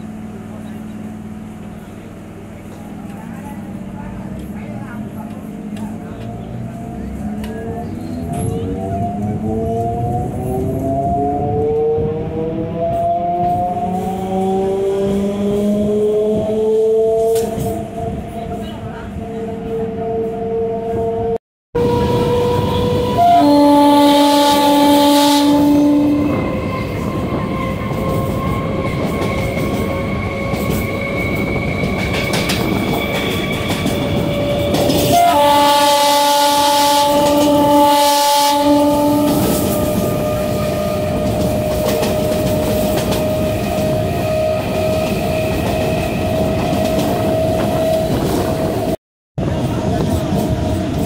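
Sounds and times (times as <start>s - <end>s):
train running rumble: 0.0s - 51.0s
train horn blasts: 21.8s - 28.8s, 35.0s - 41.4s.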